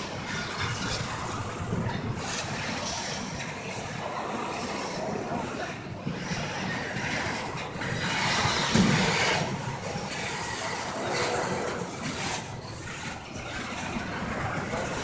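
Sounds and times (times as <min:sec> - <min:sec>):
freight train rolling past: 0:00.0 - 0:15.0
train clank: 0:08.3 - 0:15.0.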